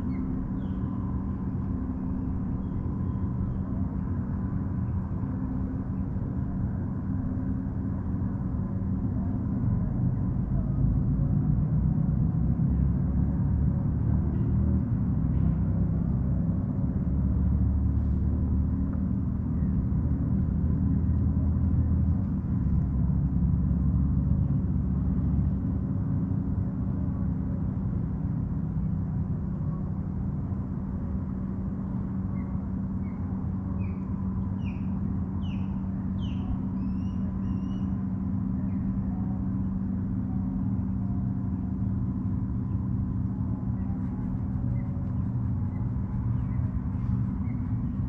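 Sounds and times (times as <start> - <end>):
motorboat engine rumble: 0.0 - 48.0
bird chirping: 34.6 - 38.0.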